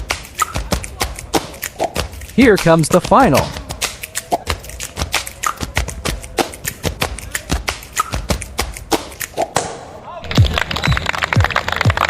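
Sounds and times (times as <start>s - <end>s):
music with thumping beat: 0.0s - 9.8s.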